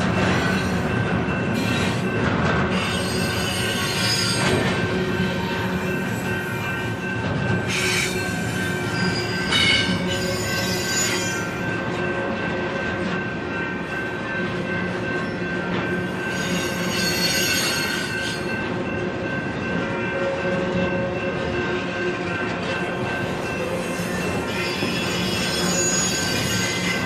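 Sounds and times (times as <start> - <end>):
freight train rumbling on rails: 0.0 - 27.0
train wheels squealing: 1.5 - 11.7, 16.1 - 18.5, 23.5 - 27.0.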